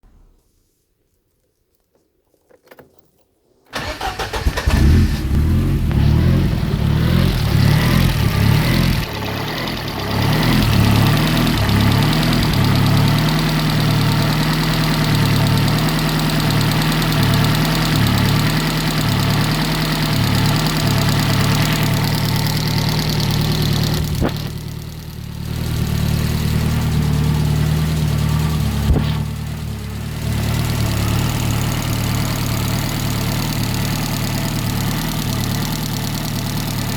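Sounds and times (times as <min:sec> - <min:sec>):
engine tappet noise: 0:03.7 - 0:33.0
engine starting and idling: 0:03.7 - 0:33.1.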